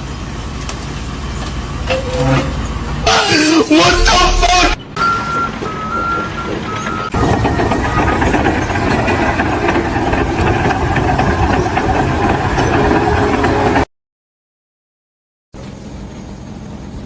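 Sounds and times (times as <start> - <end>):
loud engine running: 3.8 - 13.9.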